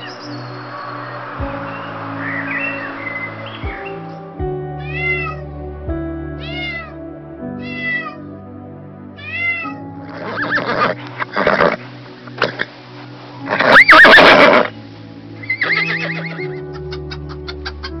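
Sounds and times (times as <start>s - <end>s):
soft background music: 0.0s - 18.0s
cat meowing: 4.8s - 5.4s, 6.4s - 7.0s, 7.6s - 8.2s, 9.2s - 11.0s
horse whinnying: 9.2s - 11.8s, 13.5s - 14.7s, 15.4s - 16.6s.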